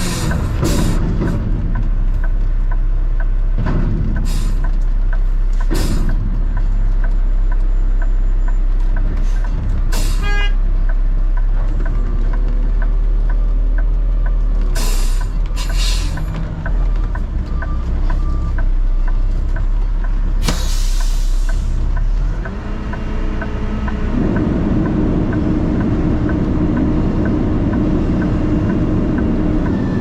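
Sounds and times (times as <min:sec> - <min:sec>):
diesel truck engine running: 0:00.0 - 0:30.0
light regular ticking: 0:01.8 - 0:03.5.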